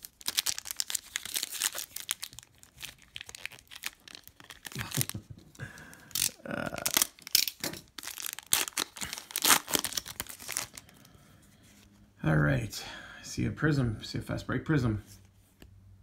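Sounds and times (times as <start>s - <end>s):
card pack wrapper tearing and crinkling: 0.0s - 11.0s.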